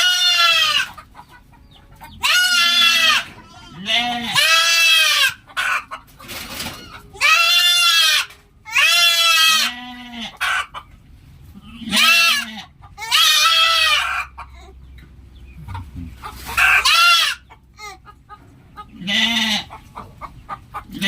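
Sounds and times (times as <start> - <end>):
goats bleating: 0.0 - 1.0, 2.2 - 5.6, 6.8 - 10.4, 11.5 - 14.7, 16.5 - 18.0, 18.9 - 19.8.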